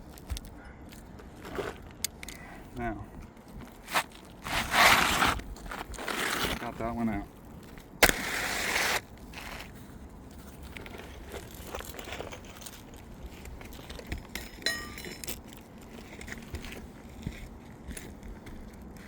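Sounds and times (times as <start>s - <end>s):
gritty shingle scuffs: 0.0s - 2.2s, 3.2s - 18.8s
shingle rasping scrape: 3.8s - 6.7s, 8.0s - 9.8s
metal tool clinking: 14.3s - 15.4s.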